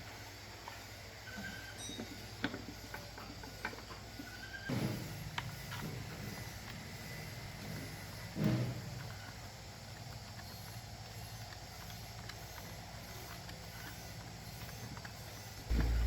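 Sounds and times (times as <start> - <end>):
dull thumps: 15.7 - 16.0
steady low hum: 15.7 - 16.0.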